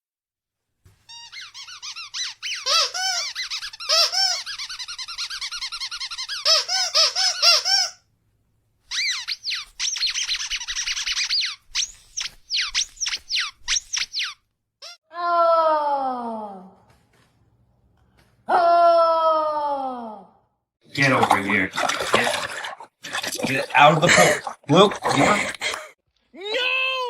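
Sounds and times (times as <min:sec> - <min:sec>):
squeaky dog toy squeaking: 0:01.1 - 0:08.0, 0:08.9 - 0:15.0.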